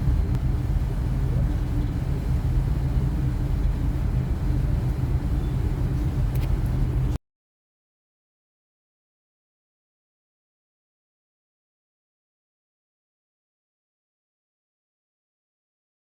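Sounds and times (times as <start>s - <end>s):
low engine rumble: 0.0s - 7.2s.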